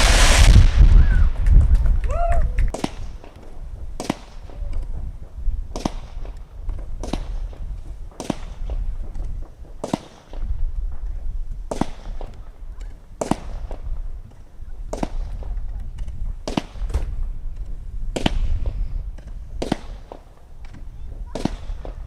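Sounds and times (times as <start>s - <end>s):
low rumble: 0.0s - 2.8s
firework bangs: 0.0s - 14.2s, 14.8s - 22.0s.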